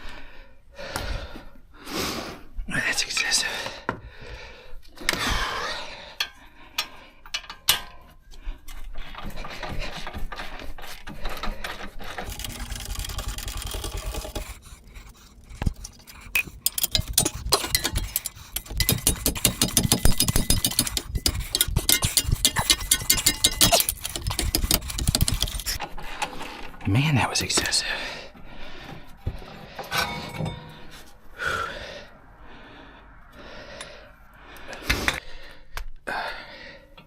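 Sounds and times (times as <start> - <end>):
metal clinks and scraping: 12.0 - 25.8, 29.7 - 31.1
rapid metallic tool clicking: 12.2 - 14.9, 15.6 - 25.8.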